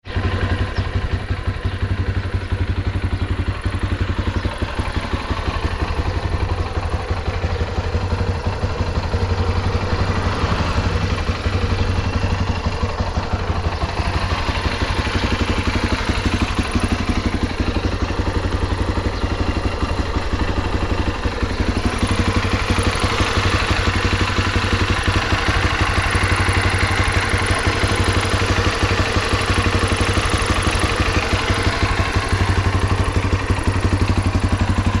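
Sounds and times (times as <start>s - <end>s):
motorcycle engine idling: 0.0s - 35.0s.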